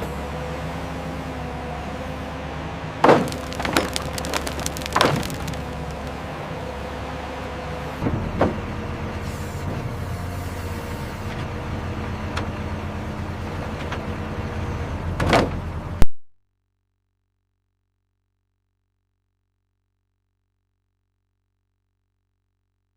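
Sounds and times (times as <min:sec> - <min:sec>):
wood cracking: 0:03.1 - 0:06.2
logging machine engine running: 0:03.2 - 0:06.2.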